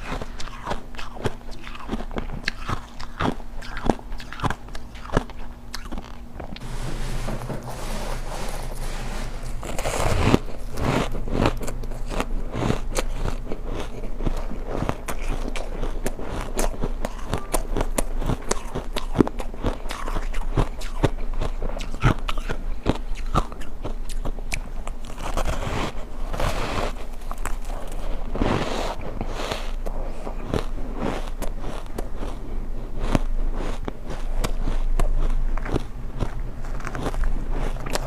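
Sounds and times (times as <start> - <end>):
chewing ice crunches: 0.0 - 6.6, 9.4 - 38.0.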